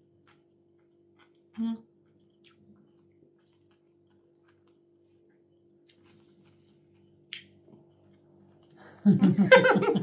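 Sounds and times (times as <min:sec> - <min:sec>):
steady low hum: 0:00.0 - 0:10.0
mouth clicks and lip smacks: 0:02.2 - 0:04.8, 0:07.3 - 0:07.6.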